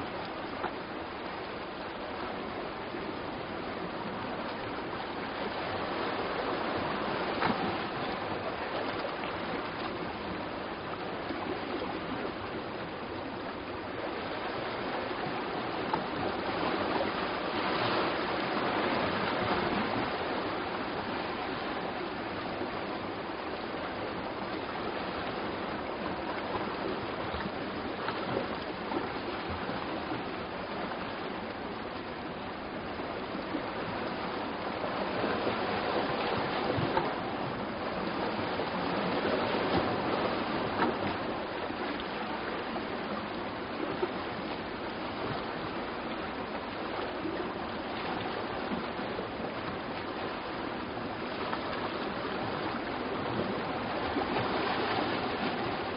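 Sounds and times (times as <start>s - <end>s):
sea surf washing ashore: 0.0s - 55.9s.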